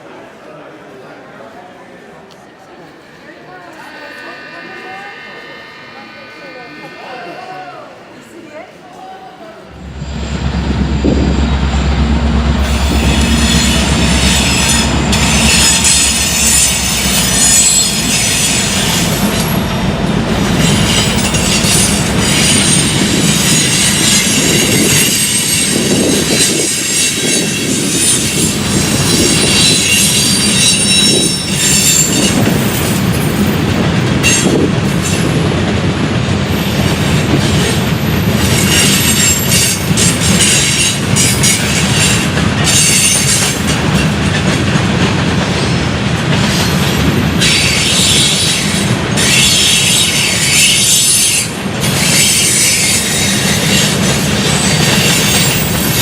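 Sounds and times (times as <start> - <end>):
train wheels squealing: 3.1 - 8.6, 9.8 - 35.3, 37.5 - 44.2, 46.4 - 56.0
deep engine drone: 9.7 - 18.1
train cars clattering on track: 9.7 - 56.0.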